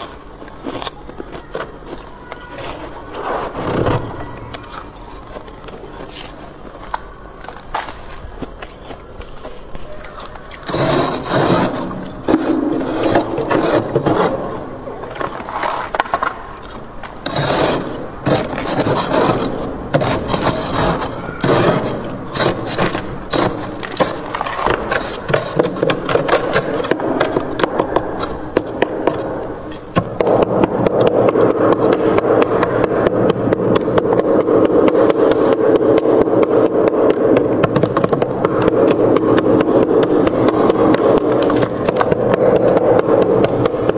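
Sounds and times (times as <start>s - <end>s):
frost being scraped: 10.0s - 16.2s, 17.1s - 30.0s.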